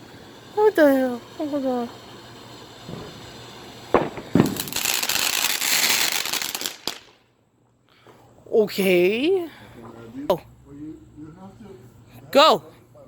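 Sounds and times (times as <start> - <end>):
firework bangs: 0.0 - 7.3
firework crackling hiss: 0.0 - 7.4.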